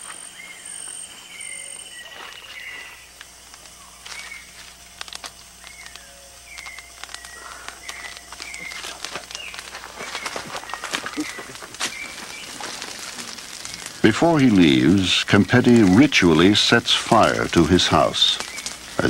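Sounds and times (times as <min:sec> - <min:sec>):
high insect trill: 0:00.0 - 0:19.0
bird whistled calls: 0:00.3 - 0:03.0
faint clicks: 0:05.0 - 0:19.0.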